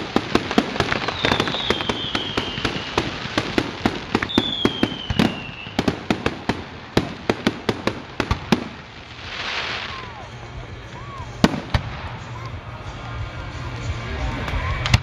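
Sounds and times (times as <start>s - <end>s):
falling firework whistles: 0.0s - 6.1s, 9.1s - 10.2s
fireworks crackling and popping: 0.0s - 15.0s.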